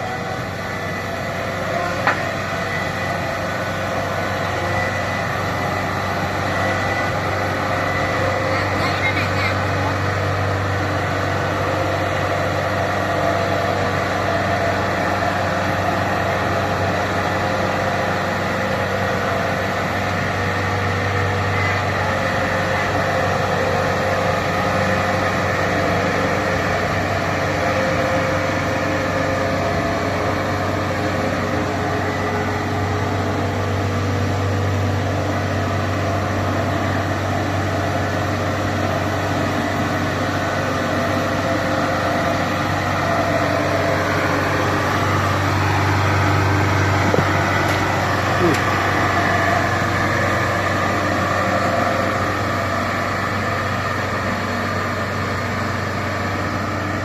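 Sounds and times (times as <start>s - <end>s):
diesel engine running steadily: 0.0s - 57.0s
engine whine: 0.0s - 57.0s.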